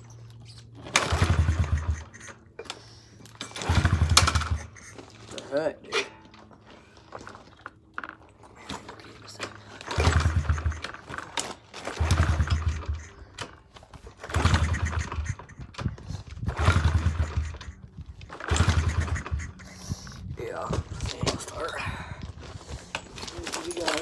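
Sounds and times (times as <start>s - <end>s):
dirt bike engine kick-started: 0.0s - 24.0s.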